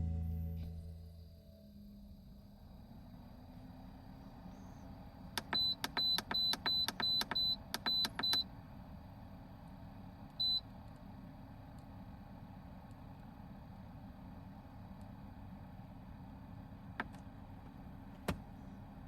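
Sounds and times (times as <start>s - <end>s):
button clicks: 5.4s - 8.4s
control panel beeping: 5.4s - 8.4s.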